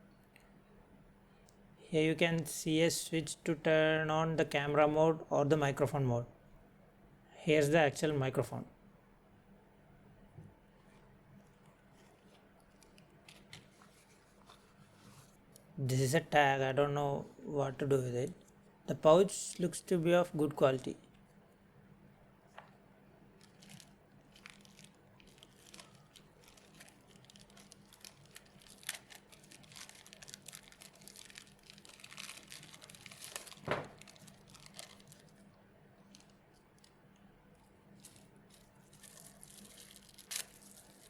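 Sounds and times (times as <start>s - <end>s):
packaging rustling and crinkling: 10.8s - 15.4s, 23.4s - 41.0s.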